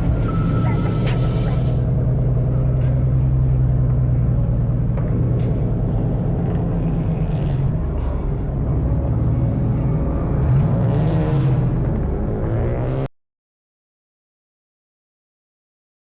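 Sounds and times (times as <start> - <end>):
car engine running: 0.0 - 13.1.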